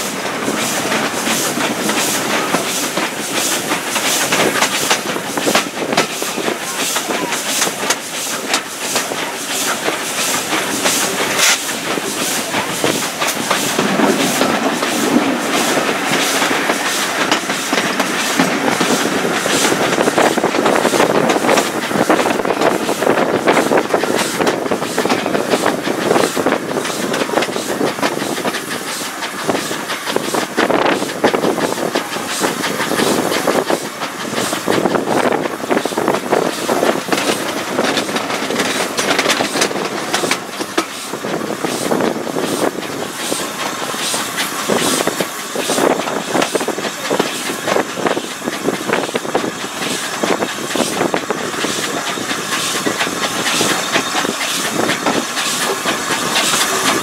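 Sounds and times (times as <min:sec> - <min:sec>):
train running noise: 0:00.0 - 0:57.0
train wheels knocking on track: 0:00.0 - 0:57.0.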